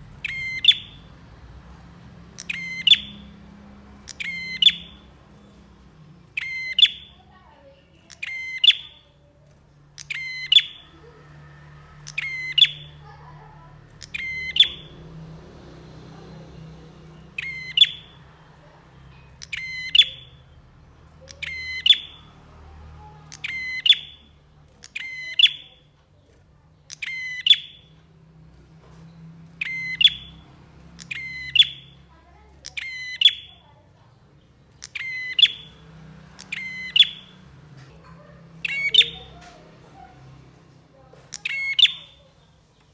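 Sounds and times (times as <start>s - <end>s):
bird calling sharp high notes: 0.0s - 15.1s, 17.0s - 22.4s, 23.2s - 25.9s, 26.9s - 28.0s, 29.4s - 33.7s, 34.6s - 37.5s, 38.5s - 40.0s, 41.3s - 42.3s
faint low hum: 0.0s - 42.9s.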